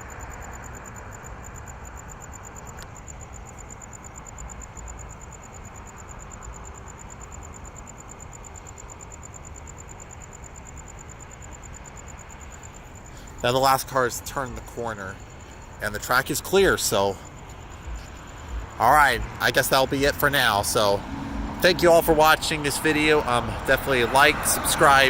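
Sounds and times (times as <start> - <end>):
high-pitched insect trill: 0.0 - 25.0
distant outdoor rumble: 11.6 - 25.0.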